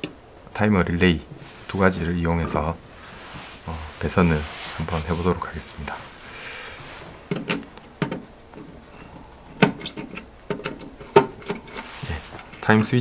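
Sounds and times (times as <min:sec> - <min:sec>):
clicks handling wire and switch: 0:07.3 - 0:12.9.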